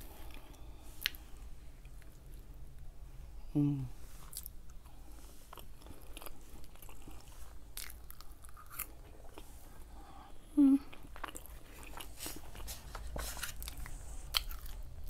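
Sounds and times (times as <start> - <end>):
person chewing food: 0.0 - 2.6, 4.2 - 15.0
person humming: 3.5 - 4.0, 10.4 - 11.0.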